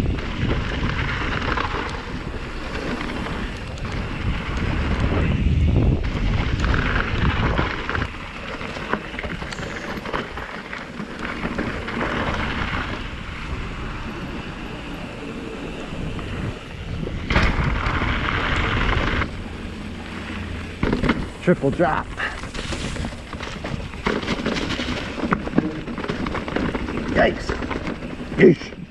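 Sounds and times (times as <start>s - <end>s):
bike tyres rattling over rocks: 0.0s - 28.9s
wind rush on microphone: 0.0s - 28.9s.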